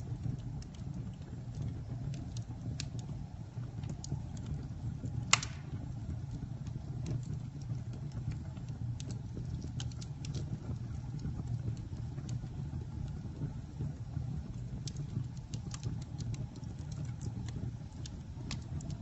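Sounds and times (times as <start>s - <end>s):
burning wood crackles: 0.0s - 19.0s
campfire low rumble: 0.0s - 19.0s
loud pop: 5.3s - 5.8s.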